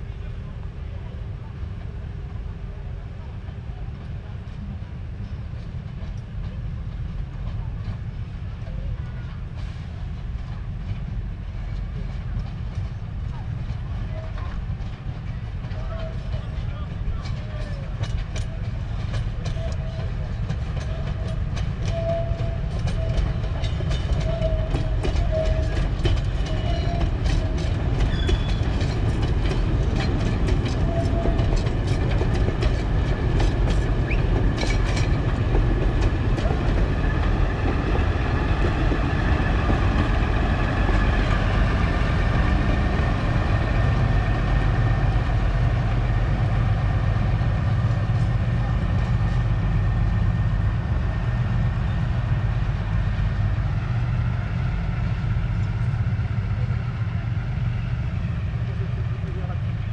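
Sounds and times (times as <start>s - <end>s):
diesel locomotive engine rumble: 0.0s - 59.9s
wheels clicking over rail joints: 12.5s - 46.4s.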